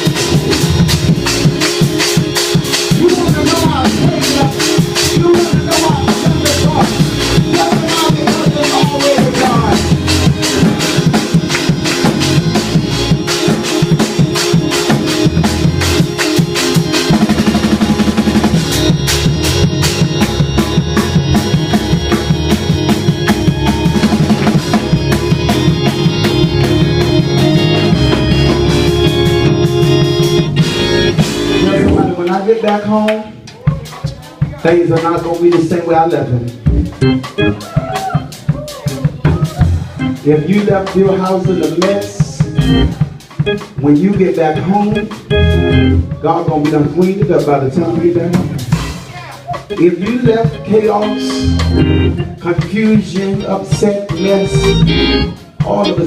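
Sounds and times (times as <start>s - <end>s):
bass: 0.0s - 32.4s, 33.4s - 56.0s
held organ chords: 0.0s - 33.5s, 34.7s - 56.0s
fast drum beat: 0.0s - 56.0s
voice wailing: 37.4s - 39.9s.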